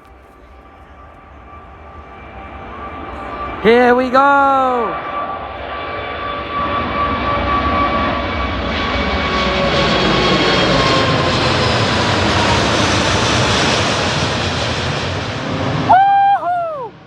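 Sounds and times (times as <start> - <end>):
jet engines roaring: 0.0 - 16.2
jet engine whine: 0.0 - 17.0.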